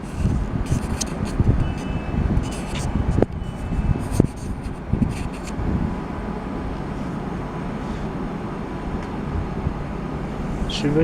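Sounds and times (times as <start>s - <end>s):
trains rumbling at station: 4.6s - 11.0s.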